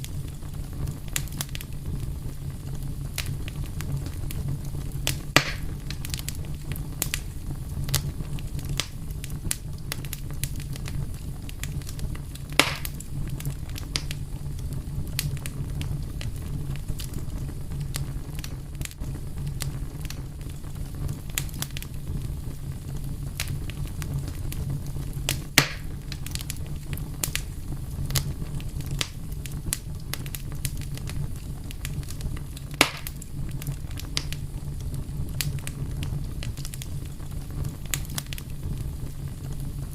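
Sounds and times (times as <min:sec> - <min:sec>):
loud fire pops: 0:00.0 - 0:39.9
wood fire crackling: 0:00.0 - 0:39.9.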